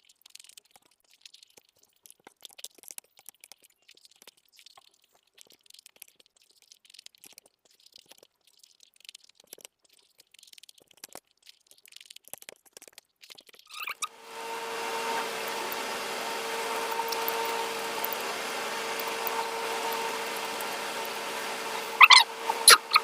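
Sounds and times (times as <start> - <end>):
chewing and wet mouth clicks: 0.0 - 14.0
steady mechanical hum: 14.0 - 23.0.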